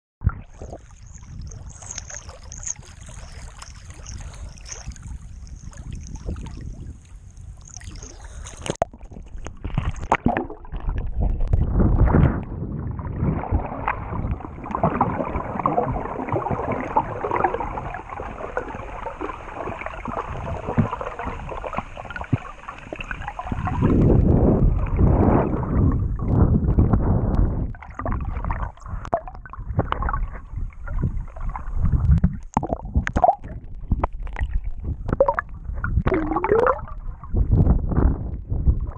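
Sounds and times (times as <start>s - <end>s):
water sloshing around a boat: 0.5s - 11.6s, 13.0s - 26.7s
low rumble: 10.9s - 15.9s.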